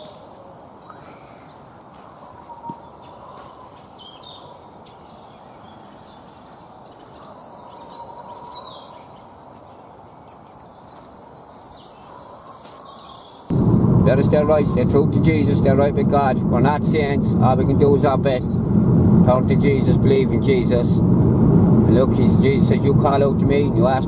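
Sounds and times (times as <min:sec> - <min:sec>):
small birds chirping: 0:00.0 - 0:15.0
low rushing background noise: 0:13.5 - 0:24.0.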